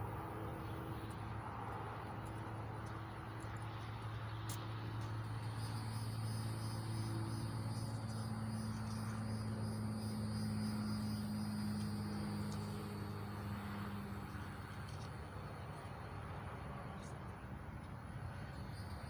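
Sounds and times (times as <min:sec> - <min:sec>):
insects trilling: 0:04.4 - 0:15.3.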